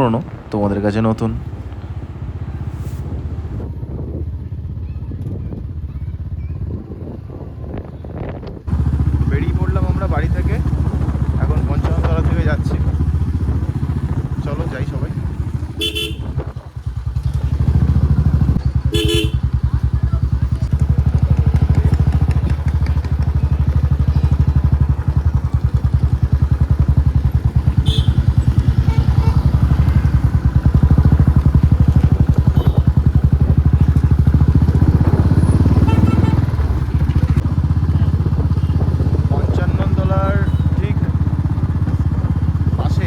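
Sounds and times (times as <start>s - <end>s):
vehicle low rumble: 0.0s - 43.0s
wind on microphone: 1.3s - 18.6s, 27.3s - 40.0s
horn tooting: 15.2s - 16.6s, 17.4s - 19.8s, 27.0s - 37.4s, 40.2s - 41.1s.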